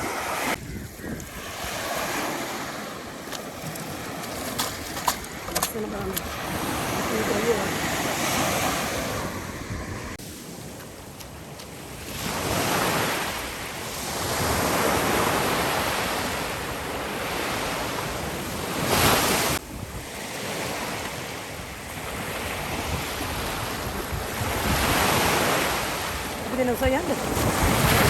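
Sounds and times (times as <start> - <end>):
waves breaking on beach: 0.0 - 28.0.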